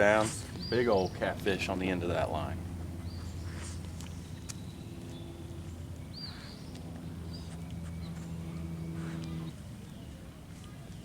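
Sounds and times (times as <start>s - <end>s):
steady low hum: 0.0s - 11.0s
pitched drone: 2.0s - 9.6s.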